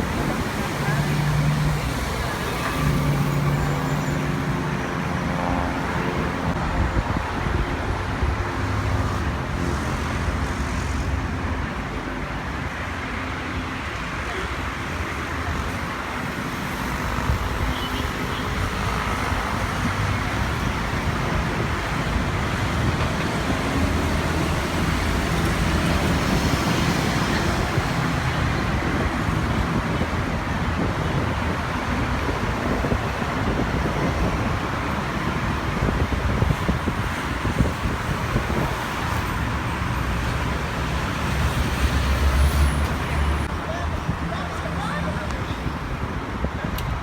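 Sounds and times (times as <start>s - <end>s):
road traffic rumble and hiss: 0.0s - 47.0s.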